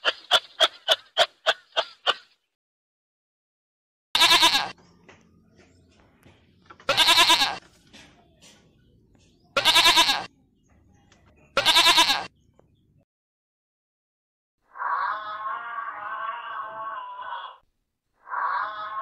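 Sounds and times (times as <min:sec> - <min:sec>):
sheep bleating: 0:04.2 - 0:04.8, 0:06.9 - 0:07.6, 0:09.6 - 0:10.3, 0:11.6 - 0:12.3, 0:14.9 - 0:17.6, 0:18.3 - 0:19.0.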